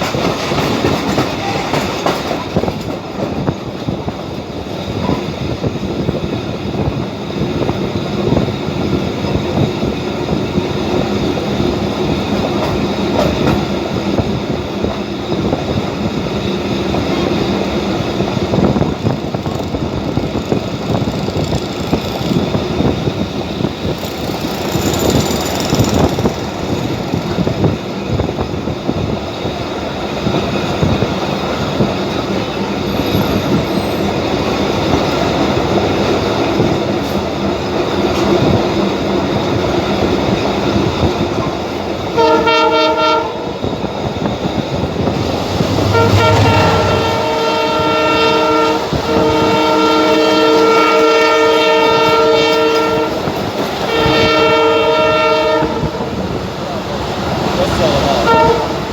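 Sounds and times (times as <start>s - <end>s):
train wheels rumbling and clattering: 0.0s - 58.9s
high wheel squeal: 23.8s - 27.3s, 45.0s - 49.5s
train horn: 42.1s - 43.8s, 45.5s - 56.2s, 58.1s - 58.9s.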